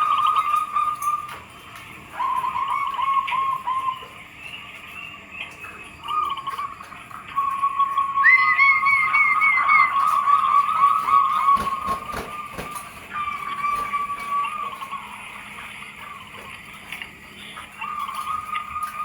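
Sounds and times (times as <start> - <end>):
doves cooing: 0.0 - 19.0.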